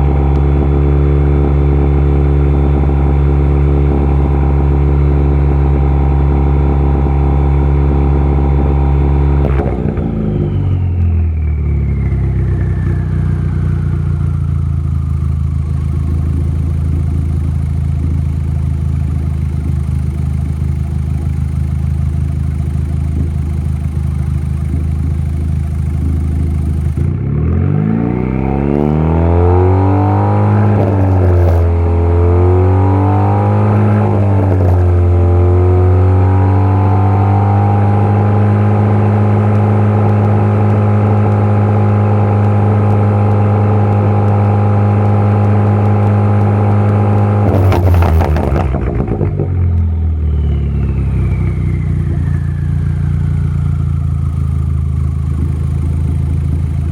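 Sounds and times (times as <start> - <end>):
car engine idling and revving: 0.0 - 56.9
exhaust pops and crackles: 9.4 - 11.7, 12.5 - 27.3, 30.6 - 31.9, 33.7 - 35.2, 39.4 - 56.9.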